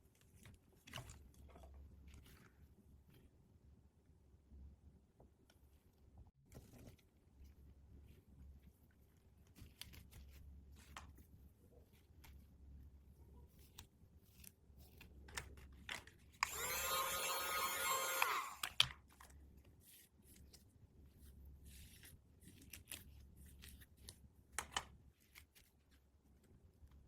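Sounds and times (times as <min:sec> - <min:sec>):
loud pitched buzzing: 0:16.5 - 0:18.6.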